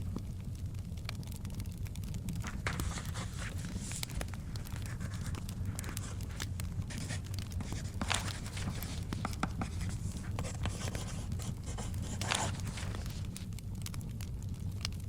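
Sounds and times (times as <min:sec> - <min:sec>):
fire crackling: 0:00.0 - 0:15.0
paper rustling: 0:02.4 - 0:13.6
pen scratching on paper: 0:02.6 - 0:04.0, 0:04.6 - 0:13.2.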